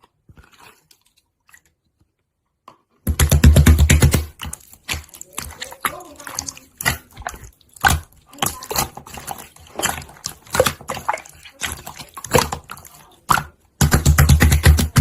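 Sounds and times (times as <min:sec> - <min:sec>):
wet clicks and squelches: 0:00.0 - 0:15.0.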